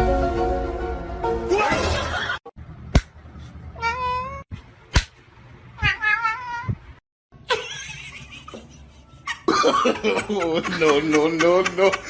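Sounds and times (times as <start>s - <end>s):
cat meowing: 3.7s - 4.5s, 5.8s - 6.8s.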